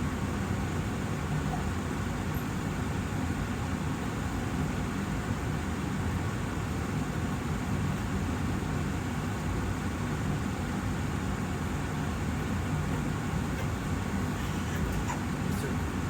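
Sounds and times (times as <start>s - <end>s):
air purifier fan running: 0.0s - 16.0s.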